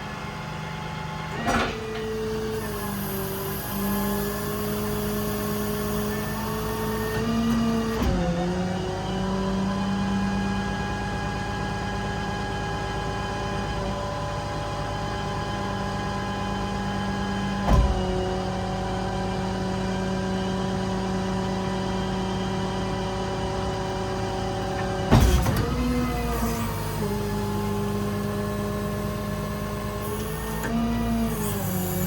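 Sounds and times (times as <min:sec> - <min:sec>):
hydraulic crane whine: 0:00.0 - 0:32.0
diesel engine running: 0:00.8 - 0:08.9, 0:17.1 - 0:32.0
crane clunk: 0:01.3 - 0:08.2, 0:17.6 - 0:18.4, 0:23.0 - 0:32.0.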